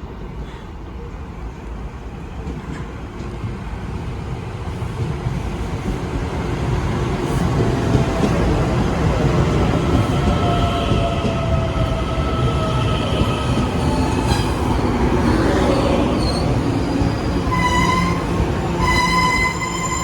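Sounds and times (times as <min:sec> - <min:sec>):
train running with whine: 0:03.6 - 0:20.0
high steady train squeal: 0:04.7 - 0:20.0.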